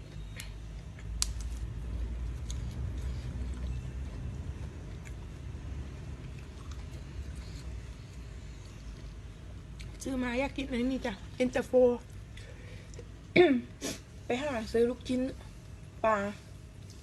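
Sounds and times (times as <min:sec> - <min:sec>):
person chewing crispy food: 0:00.4 - 0:08.2
sharp chewing clicks: 0:06.2 - 0:08.2.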